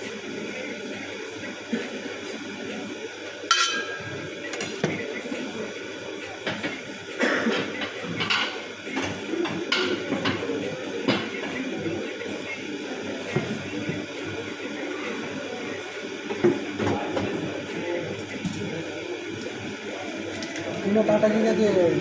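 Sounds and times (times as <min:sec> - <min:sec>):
dishes and utensils clattering: 0:03.5 - 0:04.8.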